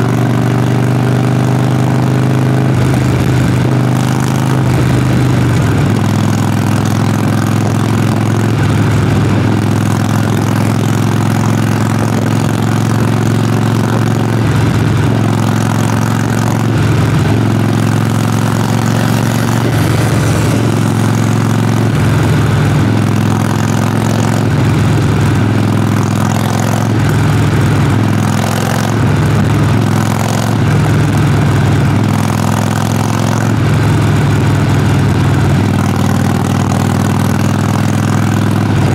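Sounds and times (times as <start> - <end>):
motorcycle exhaust at low revs: 0.0 - 38.9.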